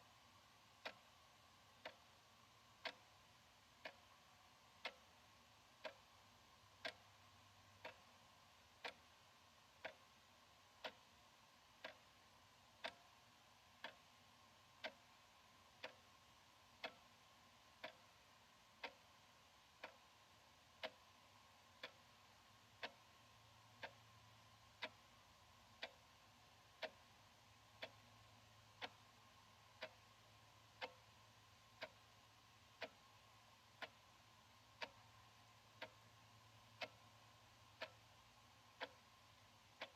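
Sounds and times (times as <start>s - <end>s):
wall clock ticking: 0.0s - 39.9s.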